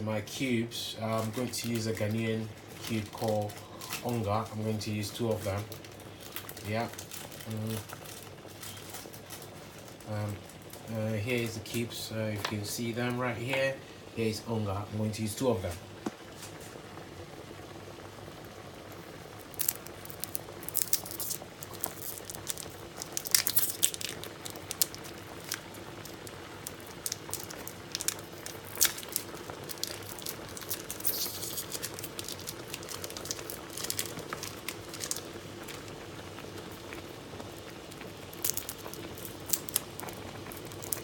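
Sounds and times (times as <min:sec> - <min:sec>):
wrappers crinkling: 0:01.1 - 0:04.6, 0:05.3 - 0:11.0, 0:19.0 - 0:41.0
pot of soup bubbling: 0:01.1 - 0:41.0.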